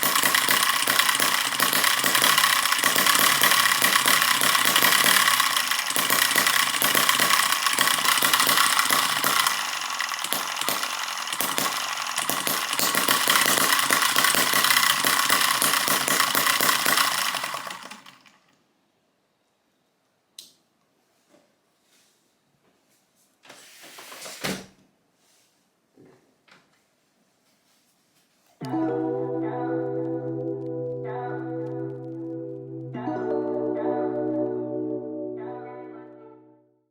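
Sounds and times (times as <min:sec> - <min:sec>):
model engine running fast: 0:00.0 - 0:18.5.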